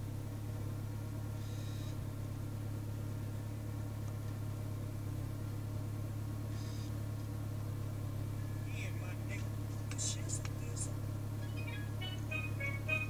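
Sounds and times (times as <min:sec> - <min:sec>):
car engine idling in cabin: 0:00.0 - 0:13.0.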